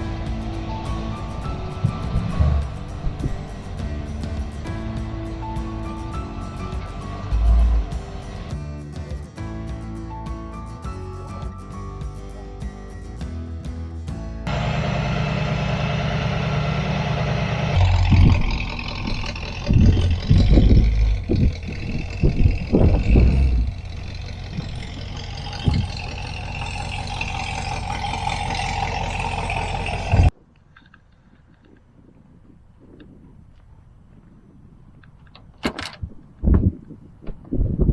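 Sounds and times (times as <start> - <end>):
car engine revving: 0.0 - 8.5, 14.5 - 30.3
car engine running: 0.0 - 8.5, 14.5 - 30.3.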